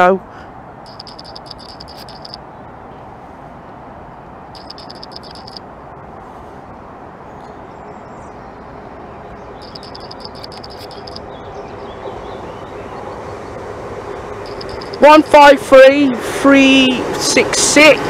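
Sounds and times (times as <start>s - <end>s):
birds chirping: 7.4s - 13.4s
train engine hum: 7.8s - 18.0s
train rumbling into platform: 11.1s - 18.0s.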